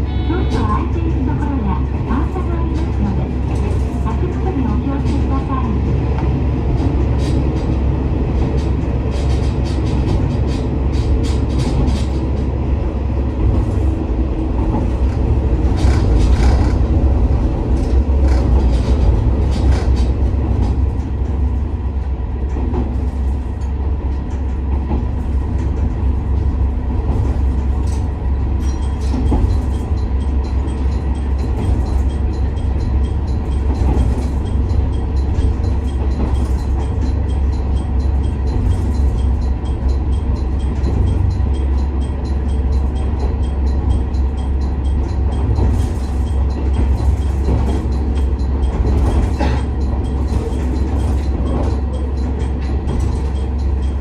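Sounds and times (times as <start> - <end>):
train engine and running gear rumble: 0.0 - 54.0
wheels clicking over rail joints: 14.6 - 21.4, 27.0 - 54.0.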